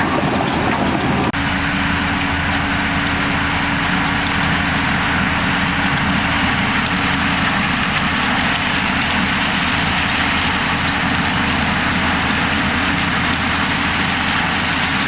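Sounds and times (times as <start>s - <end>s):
heavy diesel engine droning: 0.0s - 15.0s.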